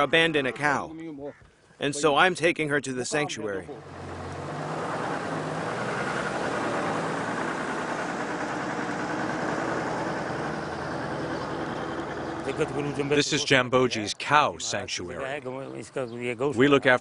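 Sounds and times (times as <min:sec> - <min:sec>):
vehicle engine droning: 0:03.6 - 0:14.3.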